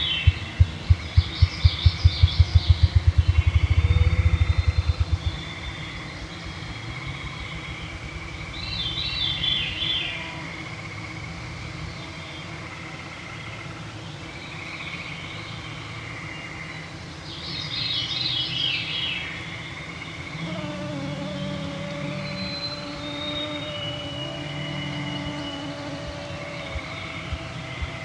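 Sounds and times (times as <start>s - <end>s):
background trilling: 0.0s - 8.0s, 20.2s - 28.0s
mosquitoes humming: 0.0s - 17.0s, 18.8s - 28.0s.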